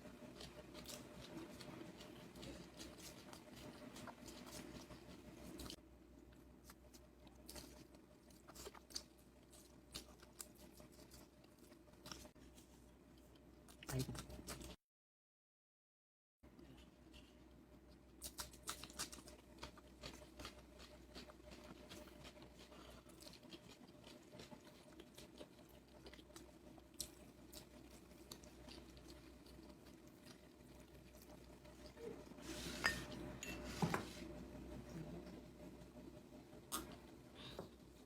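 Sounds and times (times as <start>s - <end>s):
soft chewing: 0.0s - 14.8s, 16.5s - 38.0s
small eating clicks: 17.9s - 32.1s.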